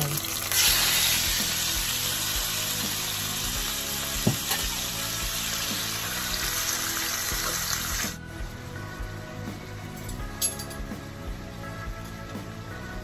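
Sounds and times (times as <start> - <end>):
chicken sizzling in oil: 0.0 - 8.2
background music: 0.0 - 13.0.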